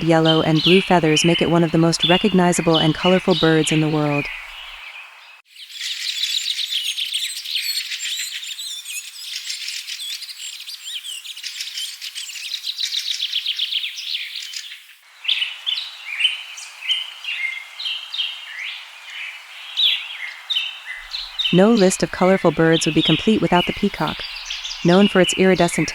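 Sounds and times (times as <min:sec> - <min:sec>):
small birds chirping chorus: 0:00.0 - 0:25.9
bird song with whistles: 0:05.8 - 0:14.4.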